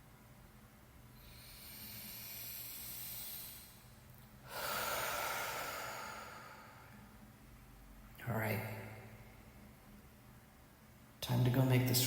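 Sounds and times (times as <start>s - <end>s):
person breathing heavily: 1.2s - 7.1s.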